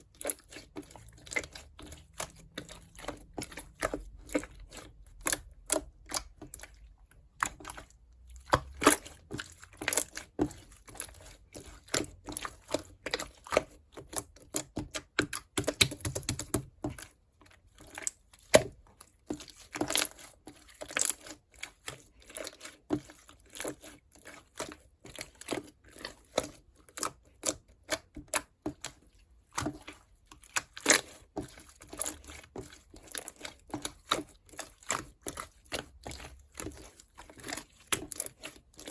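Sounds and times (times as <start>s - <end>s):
slime squishing sticky pops: 14.6s - 16.8s.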